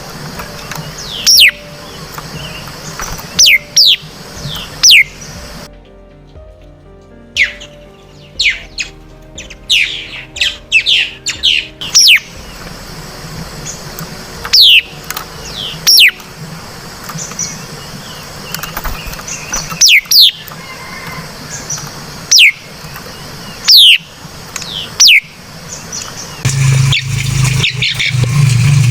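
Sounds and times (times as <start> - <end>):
bird whistling calls: 1.0 - 2.7.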